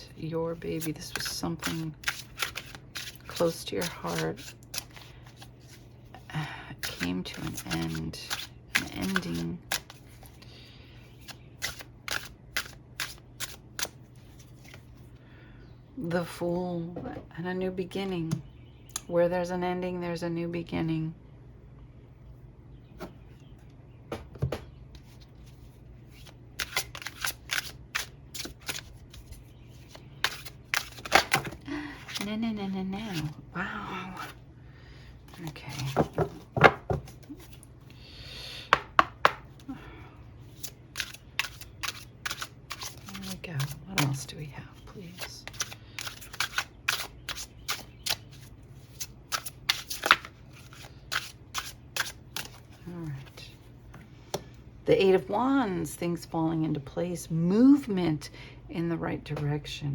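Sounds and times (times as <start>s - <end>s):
cards being shuffled: 0.6s - 5.9s, 6.8s - 10.4s, 11.2s - 14.9s, 25.0s - 32.3s, 33.0s - 33.4s, 35.3s - 37.6s, 40.4s - 44.3s, 45.1s - 53.4s.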